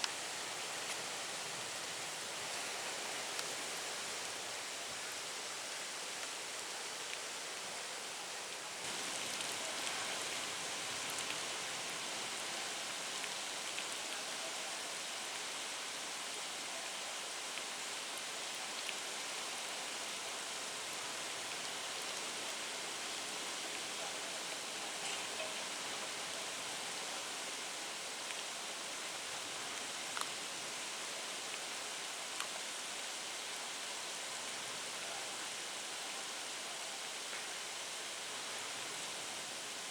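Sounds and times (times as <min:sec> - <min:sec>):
faint raindrop ticks: 0:00.0 - 0:01.4, 0:02.4 - 0:03.7, 0:06.0 - 0:07.4, 0:08.8 - 0:15.5, 0:16.5 - 0:32.7, 0:37.2 - 0:37.6
rain and wind hiss: 0:00.0 - 0:39.9.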